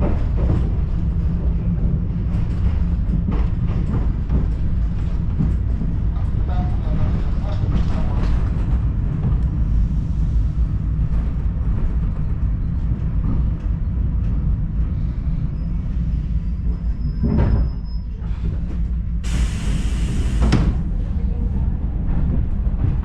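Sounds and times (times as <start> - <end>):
diesel train rumbling: 0.0 - 23.0
burst of hiss: 19.2 - 20.6.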